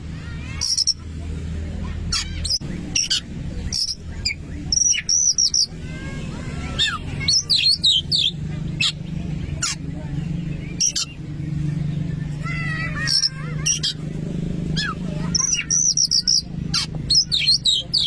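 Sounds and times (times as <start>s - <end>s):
bird singing chirps and whistles: 2.5s - 5.7s, 14.8s - 16.5s, 17.1s - 18.0s.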